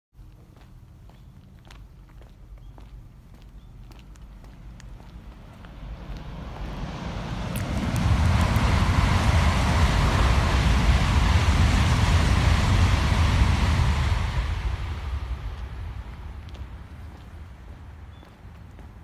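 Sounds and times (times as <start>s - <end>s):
footsteps on paved path: 0.2s - 8.4s, 15.6s - 19.0s
train passing with rushing roar: 4.1s - 19.0s.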